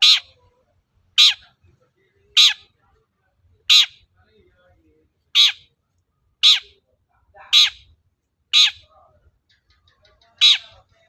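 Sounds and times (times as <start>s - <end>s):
bird harsh scratchy calls: 0.0s - 0.4s, 1.2s - 1.5s, 2.4s - 2.7s, 3.7s - 4.0s, 5.4s - 5.7s, 6.4s - 6.8s, 7.5s - 7.9s, 8.5s - 8.9s, 9.5s - 10.9s.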